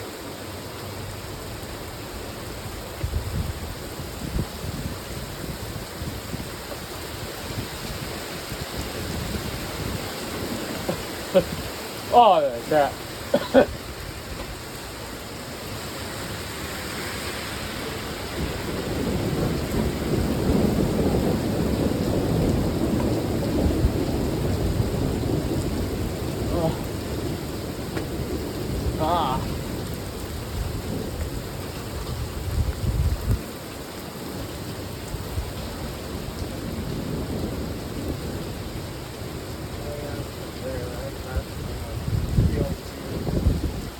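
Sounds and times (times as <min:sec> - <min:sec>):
heavy rain: 0:00.0 - 0:43.9
thunder rumbling: 0:03.0 - 0:13.9, 0:17.0 - 0:33.4, 0:39.6 - 0:43.9.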